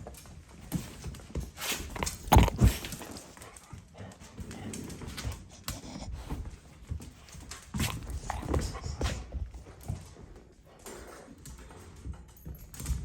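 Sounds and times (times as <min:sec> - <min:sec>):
puppy taps and scuffles: 0:00.0 - 0:13.0
heavy thumps: 0:02.0 - 0:03.0.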